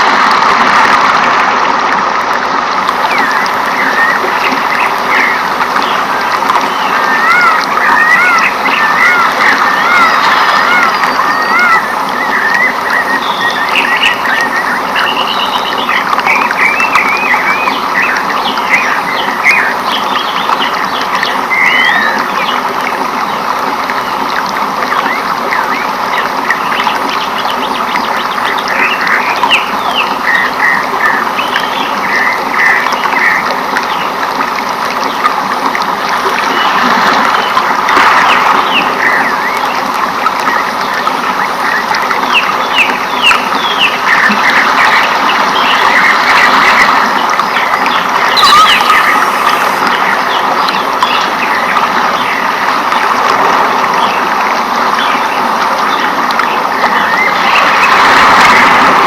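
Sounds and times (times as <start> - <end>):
birds chirping: 3.0 - 22.6, 40.5 - 52.6
frogs calling: 3.0 - 22.7, 36.3 - 52.6.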